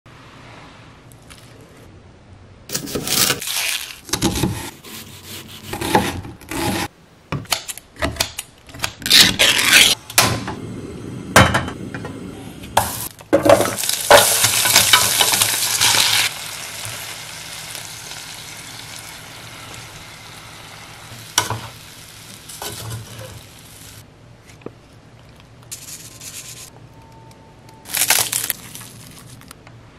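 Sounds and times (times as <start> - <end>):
food sizzling in a pot: 13.7 - 24.0
seaweed crumbling by hand: 27.9 - 29.5.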